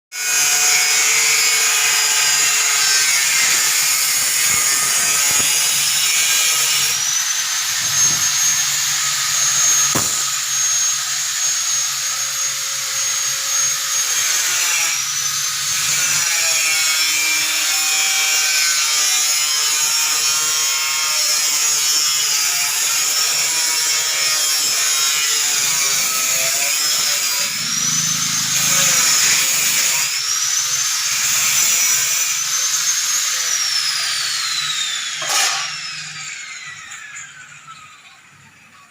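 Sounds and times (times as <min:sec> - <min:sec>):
filling machine whine and hiss: 0:03.2 - 0:17.2, 0:22.6 - 0:34.7.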